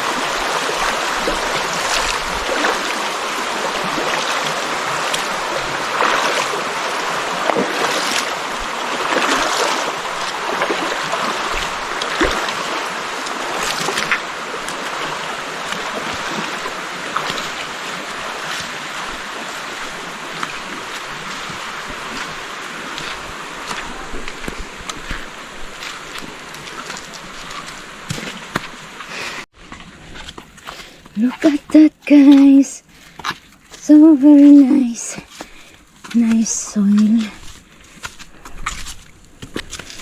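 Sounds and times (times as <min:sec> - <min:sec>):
short sharp splashes: 0:00.0 - 0:29.5
stream water rushing: 0:00.0 - 0:40.0.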